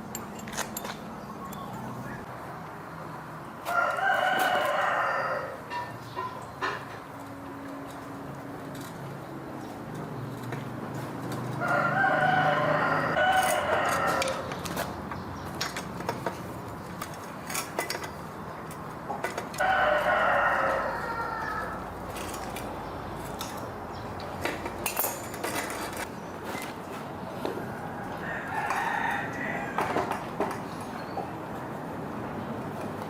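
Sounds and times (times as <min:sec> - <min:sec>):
rooster crowing: 0:03.6 - 0:05.7, 0:11.6 - 0:14.5, 0:19.6 - 0:21.9, 0:27.6 - 0:30.1.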